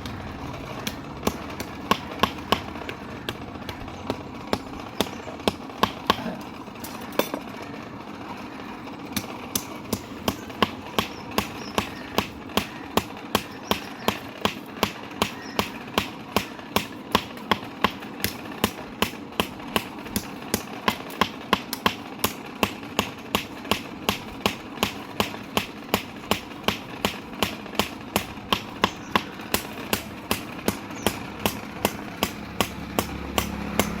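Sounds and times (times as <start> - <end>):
steady mechanical hum: 0.0 - 34.0
hammer striking metal on anvil: 23.0 - 34.0.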